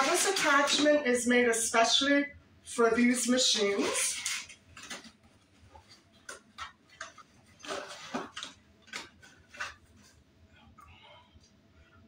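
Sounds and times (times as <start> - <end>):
packaging rustling: 3.6 - 10.2.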